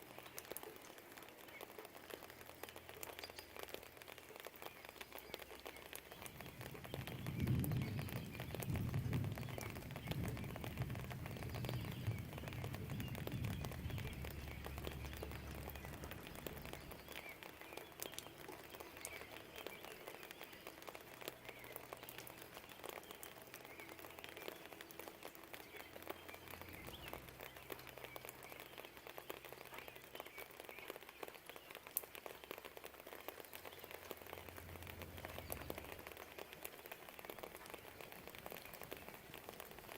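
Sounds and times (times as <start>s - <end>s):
steady rain falling: 0.0s - 39.9s
low rumble: 7.0s - 17.1s.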